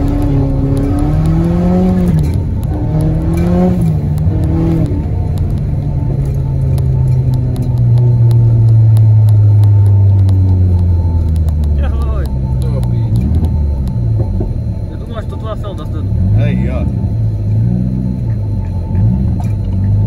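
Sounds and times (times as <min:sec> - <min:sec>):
car engine revving from cabin: 0:00.0 - 0:05.4.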